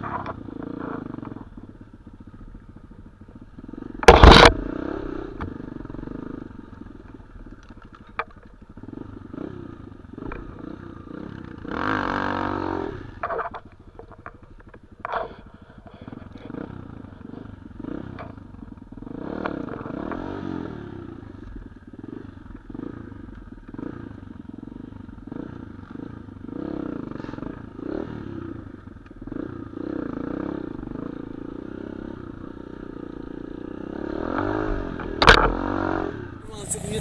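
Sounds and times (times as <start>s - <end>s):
motorcycle engine revving: 0.0s - 37.0s
knocks and clatter: 4.0s - 4.7s.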